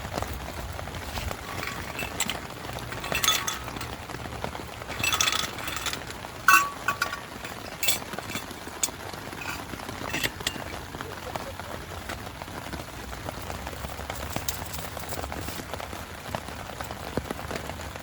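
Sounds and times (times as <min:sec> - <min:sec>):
small hard objects clinking: 0:00.0 - 0:11.6, 0:13.1 - 0:15.7
rain hissing: 0:00.0 - 0:18.0.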